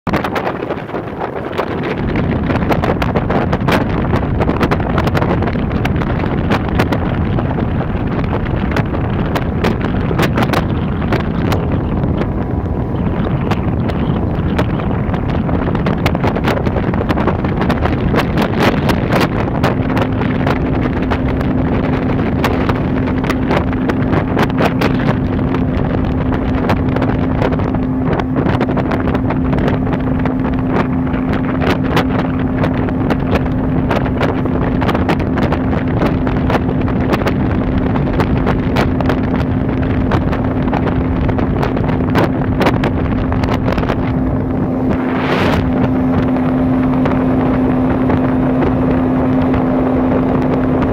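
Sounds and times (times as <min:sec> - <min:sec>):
wind crackling on microphone: 0:00.0 - 0:50.9
outboard engine running: 0:00.1 - 0:50.9.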